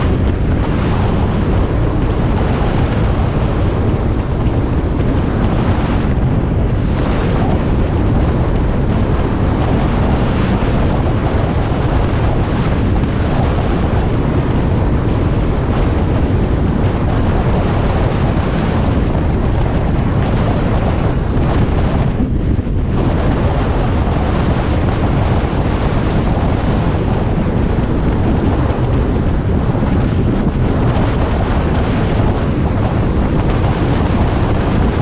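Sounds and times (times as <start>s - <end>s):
wind rush on microphone: 0.0s - 35.0s.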